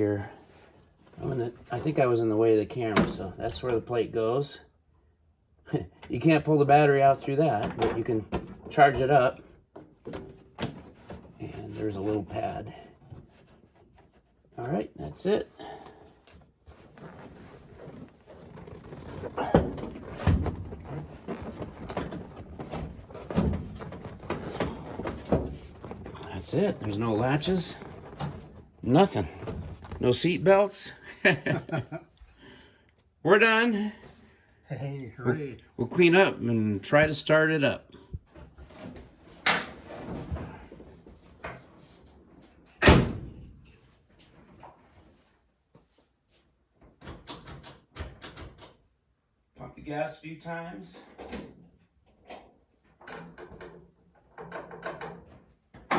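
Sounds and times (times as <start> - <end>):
knocks and clunks of parts: 2.9 - 3.8, 7.4 - 11.4, 17.8 - 30.1, 51.0 - 55.9.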